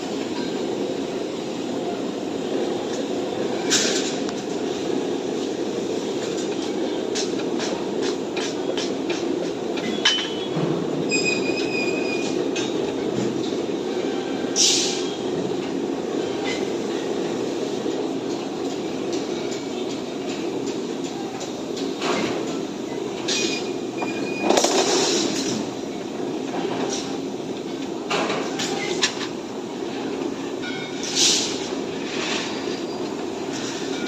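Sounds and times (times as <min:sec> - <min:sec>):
short high squeal: 0:11.1 - 0:12.3.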